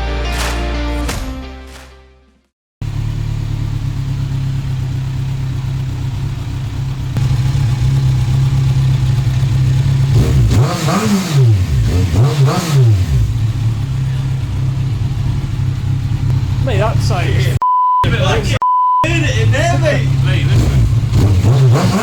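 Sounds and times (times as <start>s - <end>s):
motorcycle engine idling: 2.8s - 10.3s, 13.2s - 17.6s, 19.1s - 21.2s
motorcycle engine revving: 2.8s - 17.6s, 19.1s - 22.0s.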